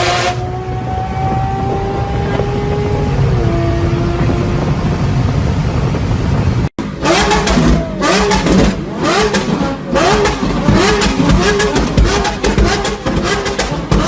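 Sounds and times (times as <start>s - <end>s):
loud car exhaust revving: 0.0s - 14.0s
steady engine rumble: 0.0s - 14.0s
exhaust crackling pops: 7.0s - 14.0s.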